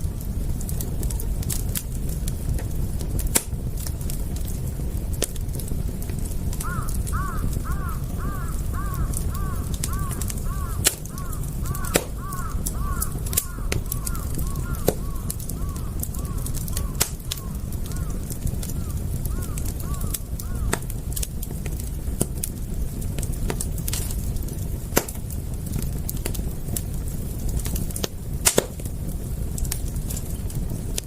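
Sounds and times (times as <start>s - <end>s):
fire crackling and popping: 0.0s - 31.0s
low steady rumble: 0.0s - 31.0s
bird calling: 6.6s - 18.2s, 18.8s - 20.7s.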